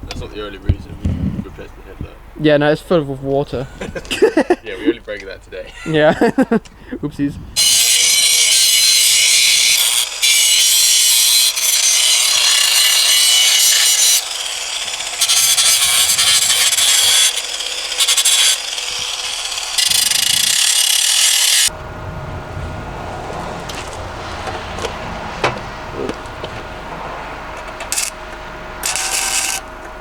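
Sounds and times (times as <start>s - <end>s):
power tool grinding steel: 7.6s - 21.8s, 27.5s - 30.0s.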